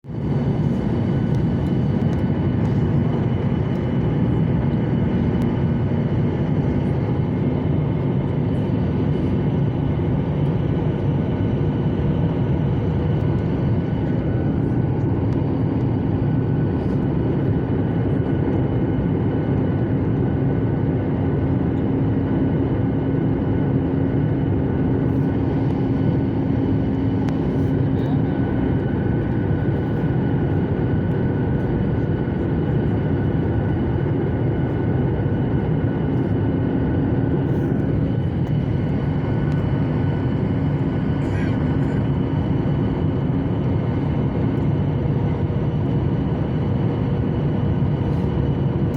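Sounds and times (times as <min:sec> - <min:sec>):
constant hum: 0:00.0 - 0:48.9
airliner cabin air rush: 0:00.2 - 0:18.4, 0:23.2 - 0:48.9.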